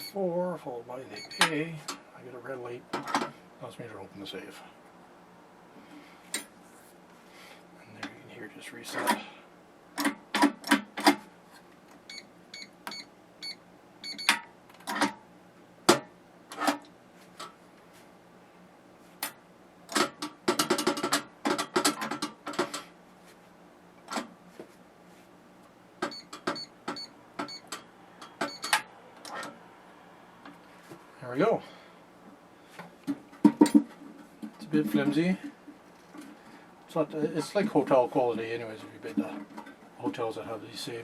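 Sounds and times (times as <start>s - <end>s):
keypad button beeps: 12.1s - 14.4s.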